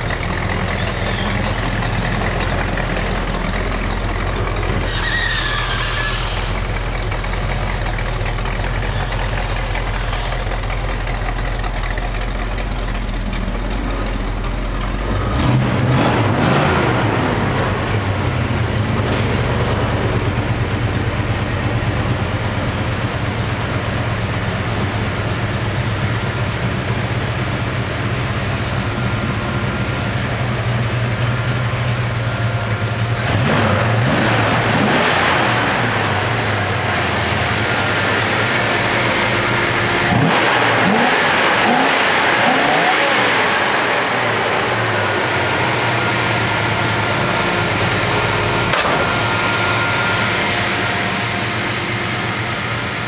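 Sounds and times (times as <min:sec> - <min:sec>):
car engines revving: 0:14.8 - 0:25.2, 0:27.7 - 0:53.0.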